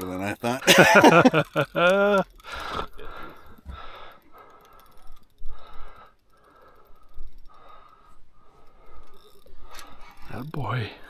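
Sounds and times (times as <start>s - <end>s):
person breathing hard: 2.4s - 10.2s.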